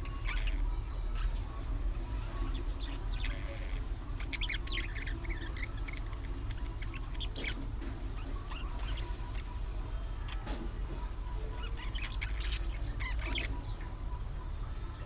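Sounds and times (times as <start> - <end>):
budgerigars chirping: 2.4 - 7.6, 11.6 - 14.0.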